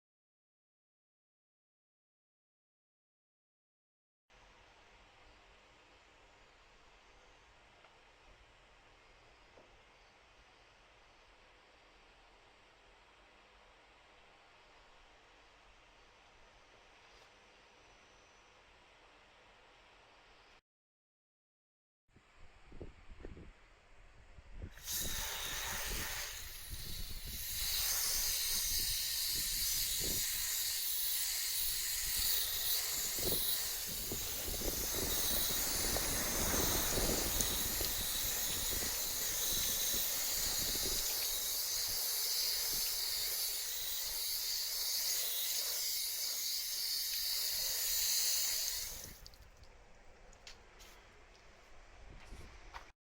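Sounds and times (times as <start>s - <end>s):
steady loud hiss: 24.8s - 49.2s.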